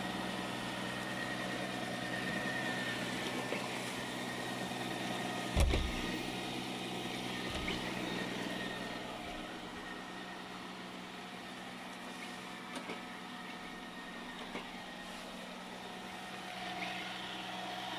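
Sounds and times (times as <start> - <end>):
robot vacuum humming: 0.0 - 12.6, 13.8 - 17.9
low thump: 5.6 - 6.1.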